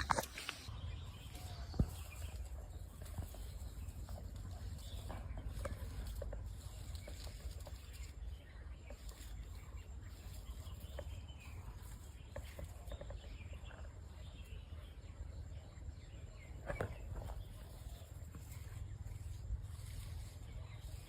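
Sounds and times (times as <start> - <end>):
faint ticks and rustles: 0.0 - 15.1
faint bird chirps: 0.0 - 21.0.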